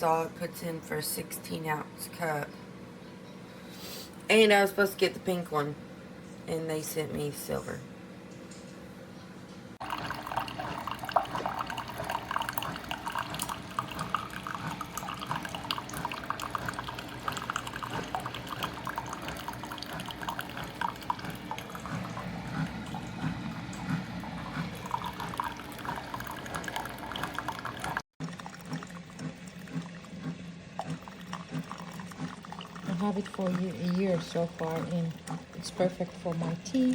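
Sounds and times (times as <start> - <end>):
coffee maker brewing: 9.8 - 36.9.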